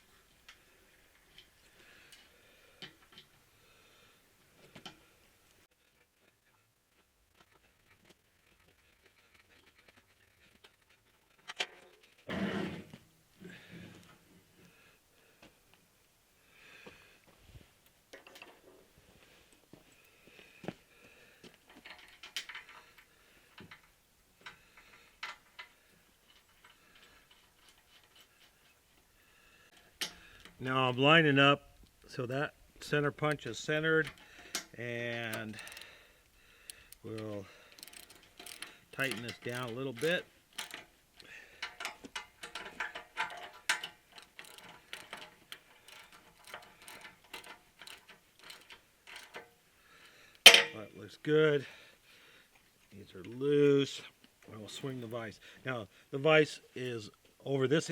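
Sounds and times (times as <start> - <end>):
tools clicking and tapping: 34.0 - 36.0, 37.7 - 49.5, 50.4 - 50.8
bench vise clicking metallically: 35.3 - 35.9, 37.7 - 40.9.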